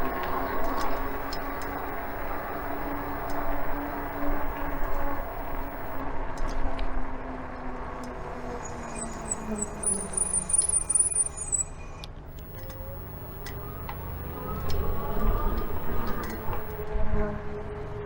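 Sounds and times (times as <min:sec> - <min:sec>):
passing motor vehicle rumble: 0:00.0 - 0:06.0, 0:12.3 - 0:16.9
wind and road noise: 0:00.0 - 0:16.9
high wavering tone: 0:08.8 - 0:16.8.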